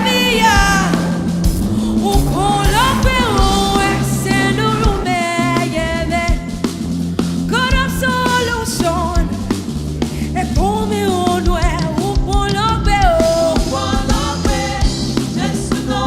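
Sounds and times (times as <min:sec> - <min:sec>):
person singing: 0:00.0 - 0:06.3
band with bass drums guitar: 0:00.0 - 0:16.0.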